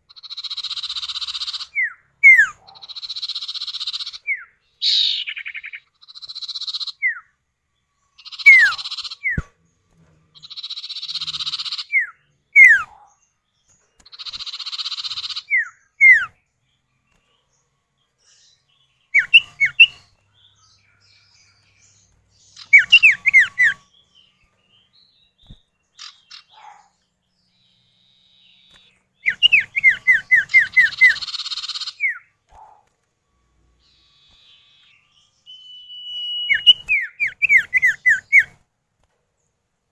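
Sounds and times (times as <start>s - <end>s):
birds chattering harshly: 0.0s - 7.4s, 8.0s - 33.0s, 33.8s - 38.6s
down-slurred whistled bird notes: 0.6s - 7.3s, 8.2s - 9.6s, 10.4s - 13.0s, 14.3s - 16.4s, 18.2s - 22.0s, 22.6s - 26.6s, 27.5s - 32.3s, 33.5s - 38.6s.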